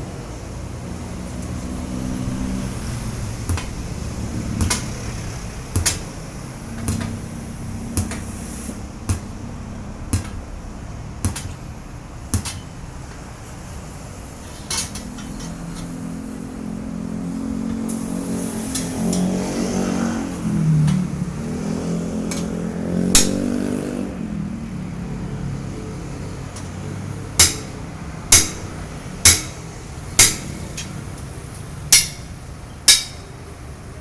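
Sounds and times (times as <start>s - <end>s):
low engine hum: 0.0s - 31.3s
sharp metallic clanks: 2.8s - 13.3s, 14.3s - 16.2s, 22.2s - 23.8s, 27.4s - 31.1s, 31.9s - 33.4s.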